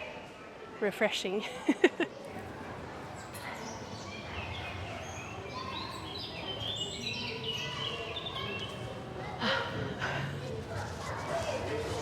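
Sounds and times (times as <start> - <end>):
small birds chirping: 3.1 - 9.1.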